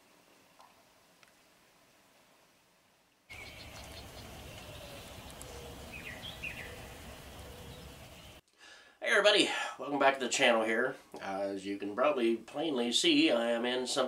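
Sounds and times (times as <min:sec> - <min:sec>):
small bird chirping: 0:03.3 - 0:08.4.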